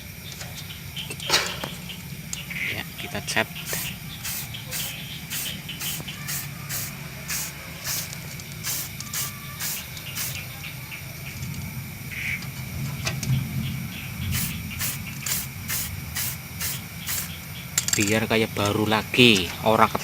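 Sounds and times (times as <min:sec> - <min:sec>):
spray can bursts: 0:03.6 - 0:10.5, 0:14.3 - 0:17.4.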